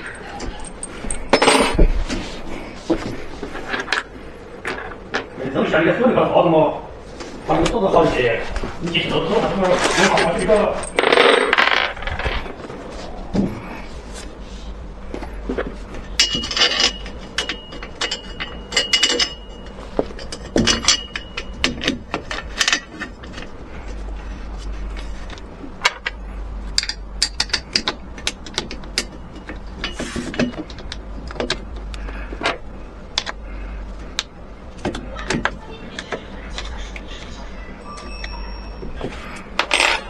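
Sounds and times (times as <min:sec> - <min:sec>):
tools clicking and scraping: 0:00.0 - 0:05.3, 0:08.9 - 0:13.4, 0:15.1 - 0:40.0
low steady hum: 0:00.0 - 0:40.0
thin squeak: 0:37.4 - 0:39.4.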